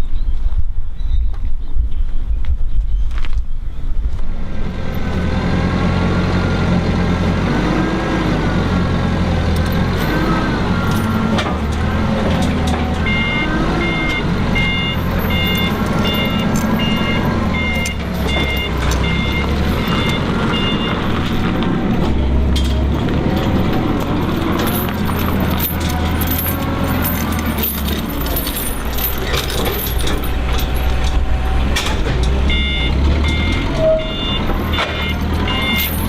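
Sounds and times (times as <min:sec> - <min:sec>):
loader engine revving: 0:04.3 - 0:36.0
reversing alarm beeping: 0:13.0 - 0:21.2, 0:32.4 - 0:36.0.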